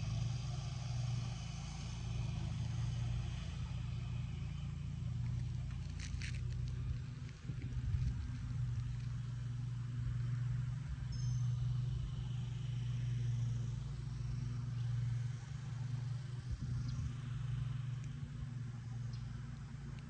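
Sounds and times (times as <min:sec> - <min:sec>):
low engine hum: 0:00.0 - 0:20.0
faint high chirps: 0:11.1 - 0:11.7.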